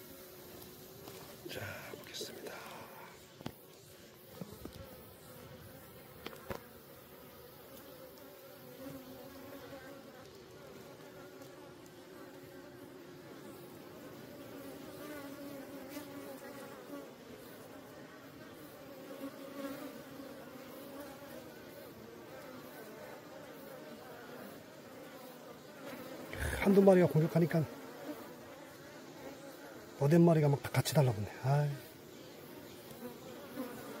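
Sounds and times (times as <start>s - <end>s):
honeybees buzzing: 0.0s - 34.0s.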